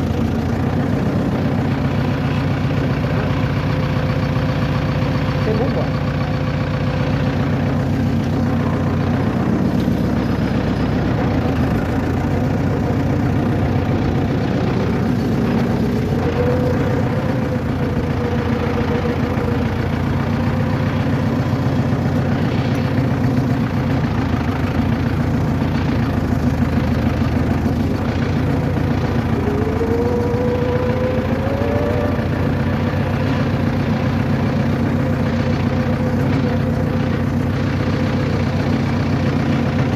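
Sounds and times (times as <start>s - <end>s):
engine running with low hum: 0.0s - 39.9s
short rising whines: 7.6s - 23.8s, 27.3s - 36.6s.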